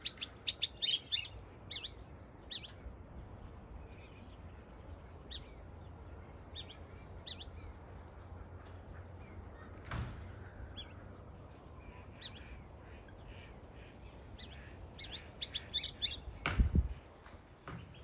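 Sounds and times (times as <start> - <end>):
bird chirping: 0.0 - 2.8, 3.9 - 7.9, 14.4 - 16.4
low background hum: 0.0 - 18.0.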